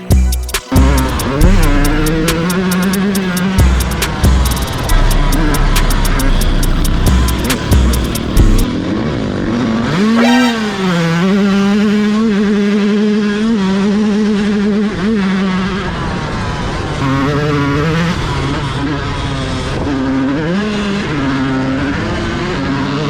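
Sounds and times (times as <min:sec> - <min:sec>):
sharp clicks and thumps: 0:00.1 - 0:08.7
dirt bike engine revving: 0:00.7 - 0:23.0.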